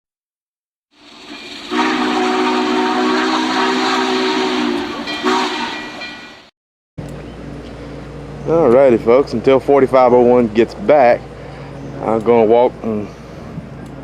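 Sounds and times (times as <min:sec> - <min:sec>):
steam locomotive chime whistle: 0:01.1 - 0:06.5.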